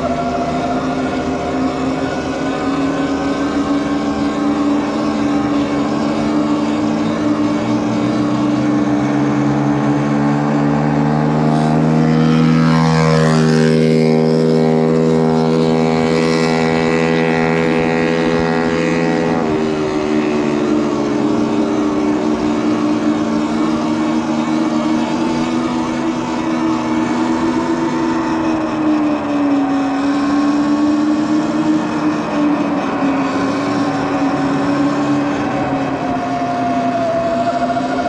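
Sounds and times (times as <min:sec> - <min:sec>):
electric motorbike motor whining: 0:00.0 - 0:38.0.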